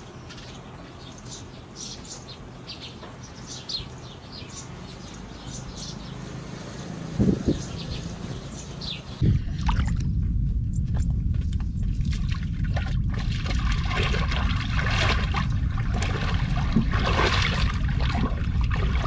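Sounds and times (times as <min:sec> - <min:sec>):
small birds chirping: 0:00.0 - 0:09.2
loud low rushing: 0:06.8 - 0:19.0
steady low rumble: 0:07.2 - 0:19.0.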